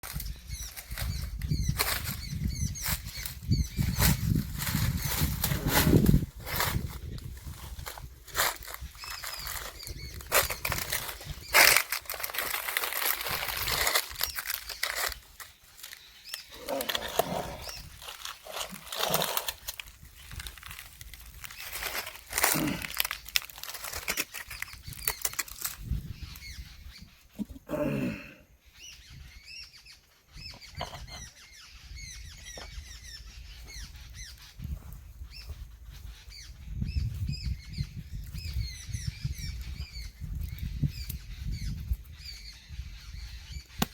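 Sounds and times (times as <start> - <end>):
birds chirping faintly: 0.0 - 43.9.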